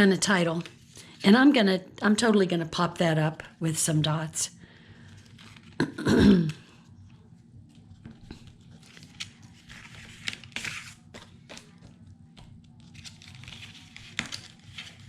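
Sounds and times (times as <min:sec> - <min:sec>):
paper rustling: 0:05.1 - 0:05.8, 0:07.7 - 0:15.0.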